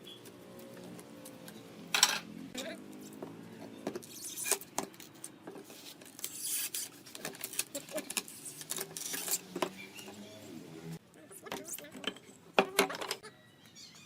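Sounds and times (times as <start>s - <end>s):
wooden parts clicking and knocking: 11.5s - 13.2s.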